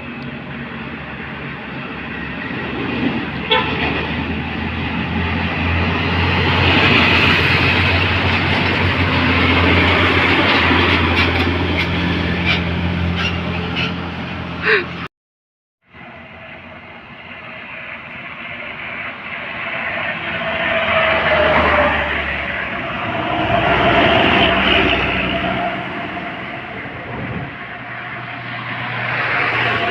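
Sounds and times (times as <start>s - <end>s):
heavy vehicle engine passing: 0.0s - 15.1s, 16.0s - 29.9s
road noise: 0.0s - 15.1s, 15.8s - 29.9s.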